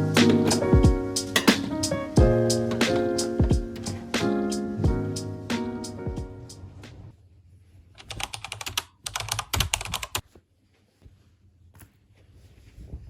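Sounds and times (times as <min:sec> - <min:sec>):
piano music: 0:00.0 - 0:07.1.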